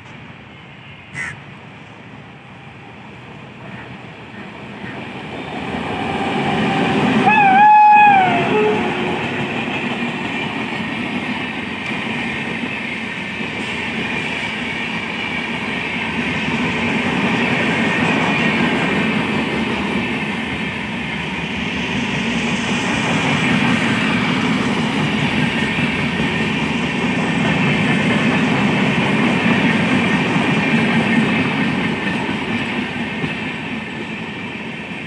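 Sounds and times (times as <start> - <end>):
train wheels rumbling on rail: 0.0 - 35.0
clickety-clack over rail joints: 8.5 - 35.0.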